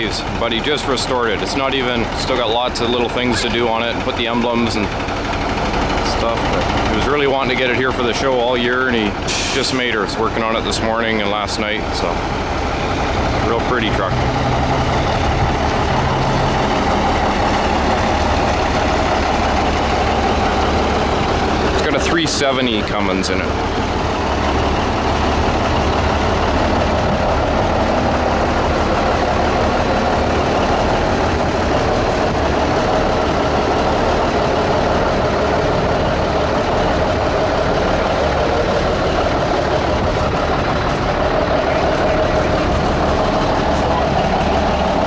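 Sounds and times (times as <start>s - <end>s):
diesel truck engine idling: 0.0s - 45.0s.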